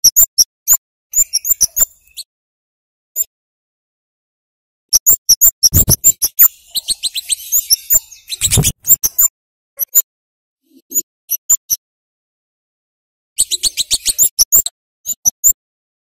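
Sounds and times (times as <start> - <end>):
bird chips: 5.0 - 10.0, 13.4 - 15.5.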